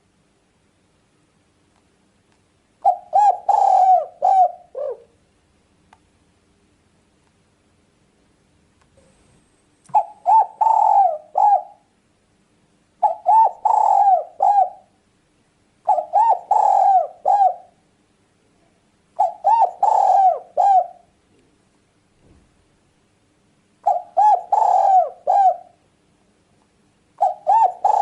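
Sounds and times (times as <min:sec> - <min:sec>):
dove cooing: 0:02.8 - 0:05.2, 0:09.9 - 0:11.9, 0:13.0 - 0:15.0, 0:15.9 - 0:17.8, 0:19.2 - 0:21.1, 0:23.8 - 0:25.8, 0:27.2 - 0:28.0.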